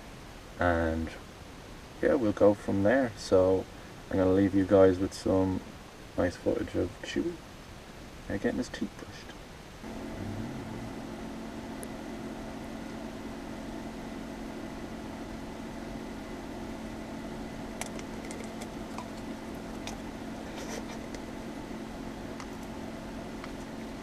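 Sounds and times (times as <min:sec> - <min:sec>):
electric toothbrush buzzing: 0:09.9 - 0:24.0.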